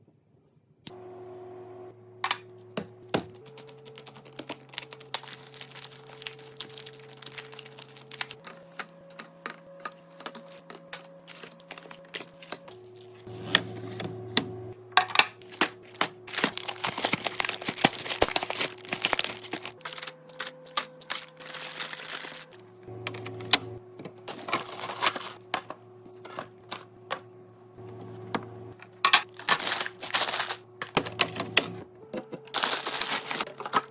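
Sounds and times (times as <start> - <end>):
soft background music: 3.4 - 33.9
containers clattering when handled: 29.0 - 33.9.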